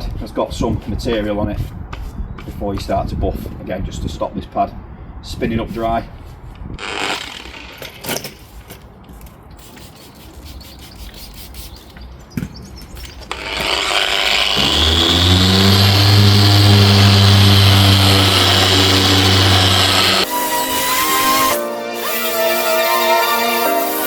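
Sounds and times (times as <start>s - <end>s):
machine polisher humming: 13.3s - 24.0s.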